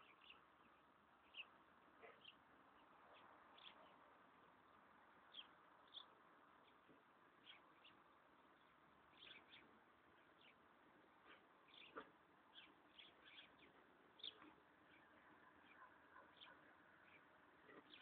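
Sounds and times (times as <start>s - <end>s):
faint steady hiss: 0.0s - 18.0s
small birds chirping: 0.0s - 18.0s.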